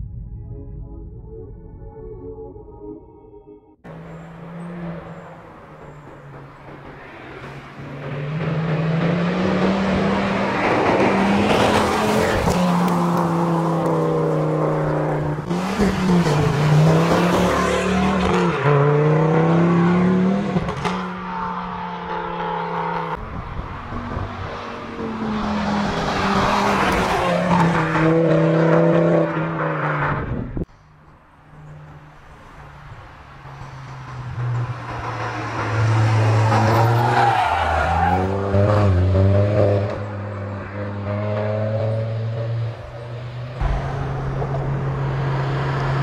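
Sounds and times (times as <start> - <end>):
car engine accelerating: 33.2 - 46.0.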